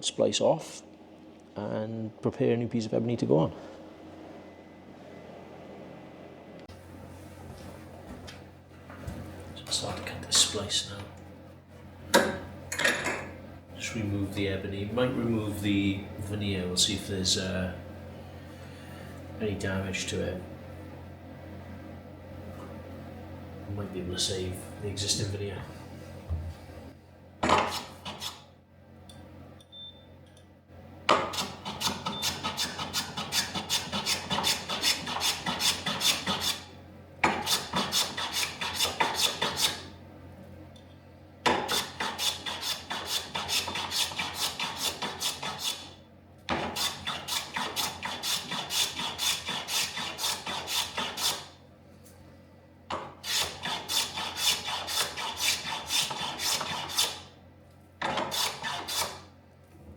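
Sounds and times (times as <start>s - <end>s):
hand plane scraping wood: 27.6s - 28.4s, 31.3s - 36.6s, 37.3s - 39.8s, 41.5s - 45.9s, 46.5s - 51.5s, 53.2s - 57.2s, 58.0s - 59.2s.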